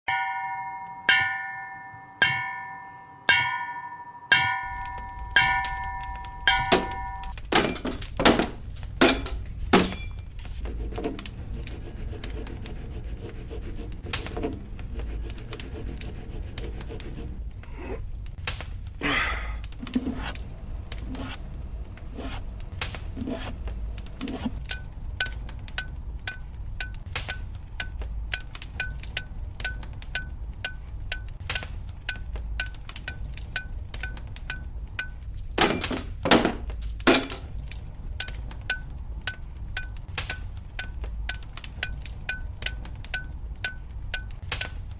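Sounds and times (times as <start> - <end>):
hammer ringing on anvil: 0.1 - 7.3
low steady rumble: 8.3 - 44.9
regular light tick: 22.5 - 35.4, 37.6 - 44.9.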